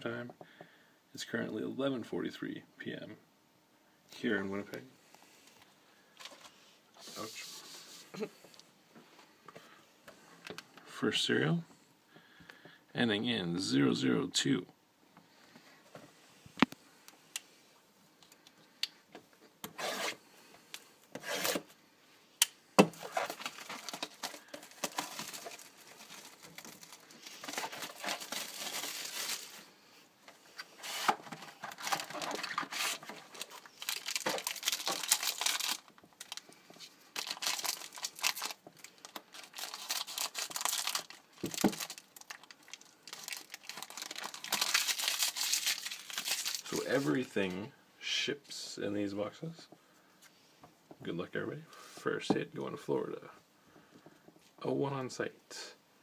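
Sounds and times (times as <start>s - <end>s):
plastic wrapping tearing and crinkling: 23.0s - 29.7s, 30.7s - 36.5s, 37.1s - 47.2s.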